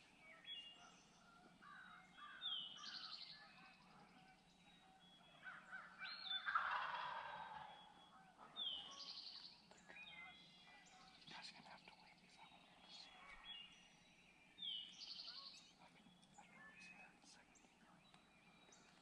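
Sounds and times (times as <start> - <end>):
wild turkey gobbling: 5.5 - 9.0.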